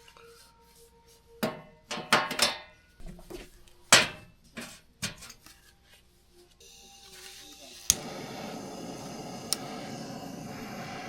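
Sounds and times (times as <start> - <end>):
camp cookware knocking and clattering: 1.4 - 5.4.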